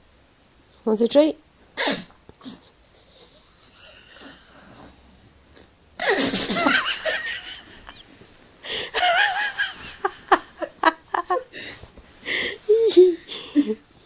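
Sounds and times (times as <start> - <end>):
dog sneezing: 1.8 - 2.6, 6.0 - 6.7.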